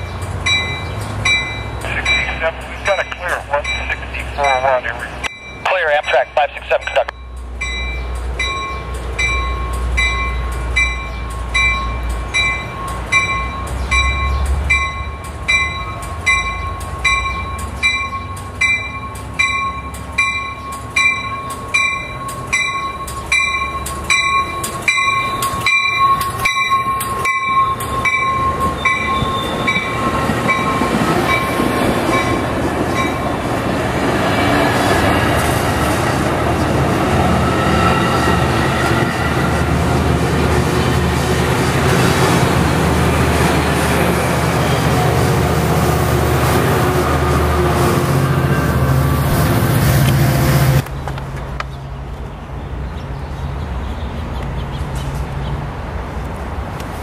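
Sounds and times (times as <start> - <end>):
electronic crossing warning bell: 0.0 - 33.3
train rolling rumble: 0.0 - 57.0.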